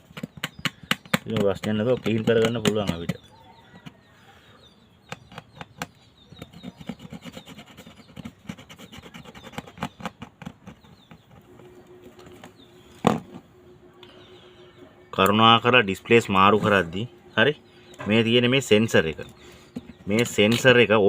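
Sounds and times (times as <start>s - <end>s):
tool scraping adhesive: 5.2s - 11.4s.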